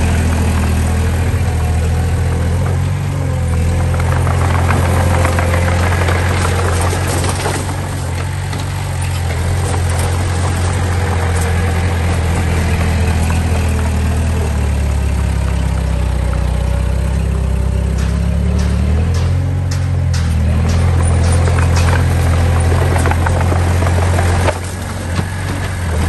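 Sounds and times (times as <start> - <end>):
heavy machinery diesel engine: 0.0 - 26.0
sharp metal clanks: 17.7 - 22.7.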